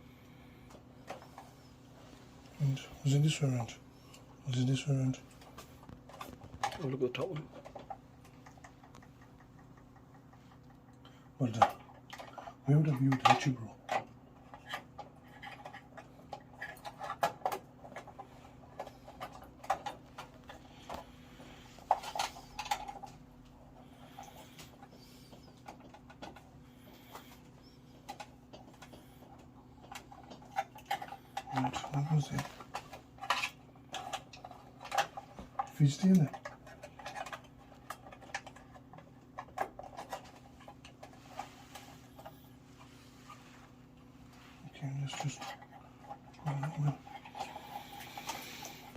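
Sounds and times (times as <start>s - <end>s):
faint low hum: 0.0s - 48.9s.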